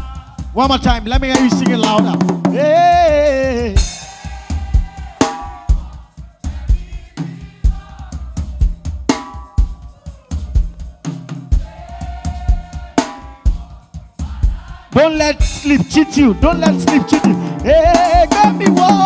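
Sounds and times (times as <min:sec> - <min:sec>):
drum kit playing driving beat: 0:00.0 - 0:19.0
held musical notes: 0:15.4 - 0:19.0.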